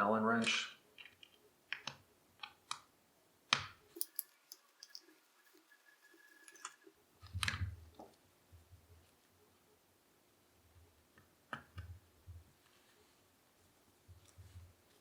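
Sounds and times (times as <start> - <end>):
allen wrench clicking on screws: 4.0 - 5.6.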